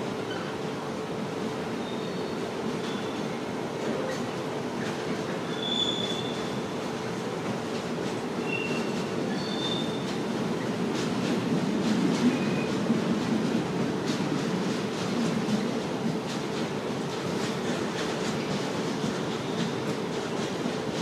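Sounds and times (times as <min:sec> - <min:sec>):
train wheels rumbling on rails: 0:00.0 - 0:21.0
high-pitched wheel squeals: 0:05.5 - 0:06.5.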